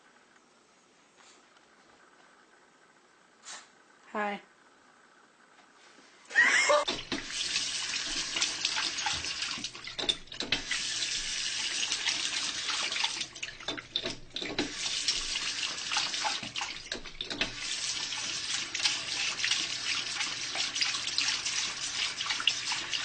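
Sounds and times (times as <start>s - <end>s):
tap water splashing into sink: 6.9s - 23.0s.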